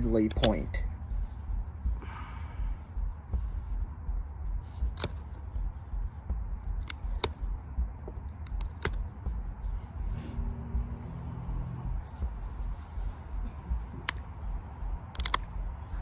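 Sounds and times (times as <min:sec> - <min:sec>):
low rumble: 0:00.0 - 0:16.0
sharp clicks: 0:00.2 - 0:00.8, 0:04.8 - 0:05.3, 0:06.7 - 0:07.5, 0:08.4 - 0:09.1, 0:14.0 - 0:15.8.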